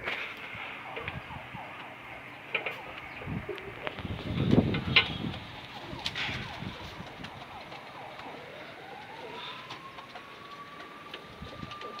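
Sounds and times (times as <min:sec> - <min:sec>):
siren winding up: 0:05.3 - 0:12.0.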